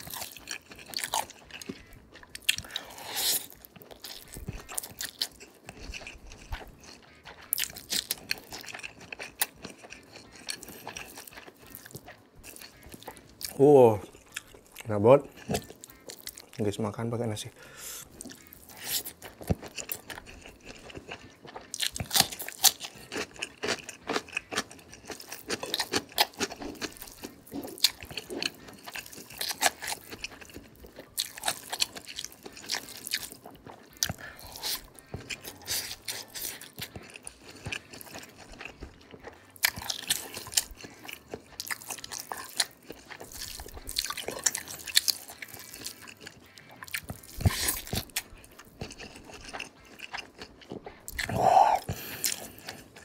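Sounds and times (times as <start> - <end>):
wet chewing and crunching: 0.0 - 53.0
mouth clicks and smacks: 18.0 - 53.0.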